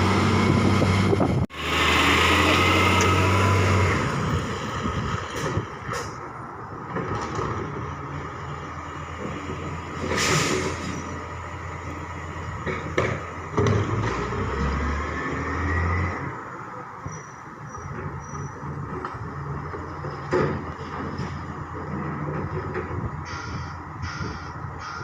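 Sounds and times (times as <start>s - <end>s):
diesel truck engine running: 0.0s - 14.6s
short hiss of air: 10.2s - 10.9s.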